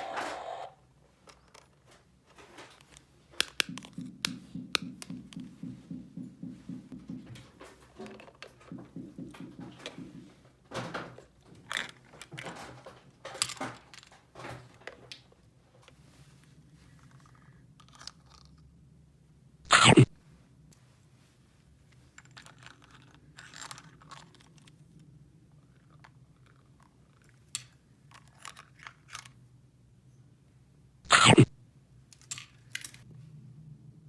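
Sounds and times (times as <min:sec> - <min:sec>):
small objects clicking and rustling: 0:00.0 - 0:04.2, 0:10.7 - 0:16.0, 0:16.9 - 0:18.7, 0:21.9 - 0:29.4, 0:32.1 - 0:33.1.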